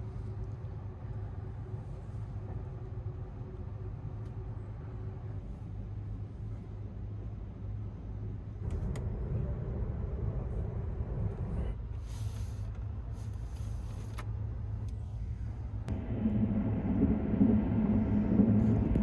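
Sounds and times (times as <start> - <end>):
train wheels rumbling on rail: 15.9 - 19.0.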